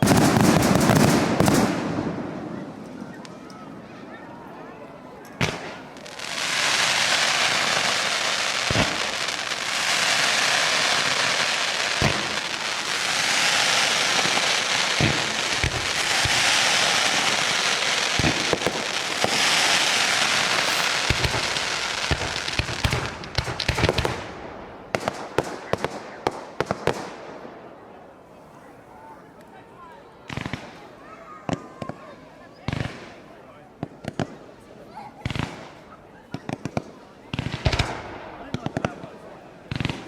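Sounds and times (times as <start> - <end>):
fireworks crackling and fizzing: 0.0 - 3.5, 5.3 - 27.5, 35.2 - 40.0
firework bang: 18.1 - 24.2.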